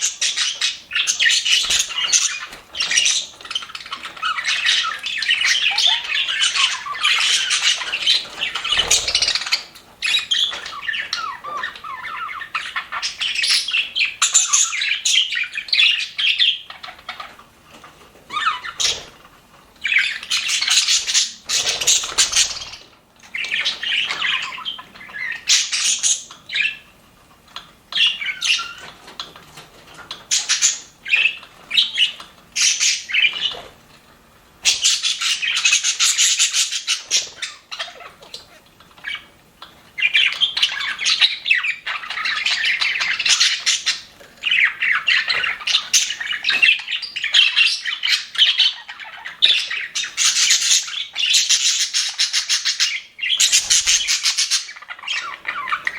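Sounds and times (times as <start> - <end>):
budgerigars chirping and warbling: 0.0 - 33.8, 34.6 - 55.9.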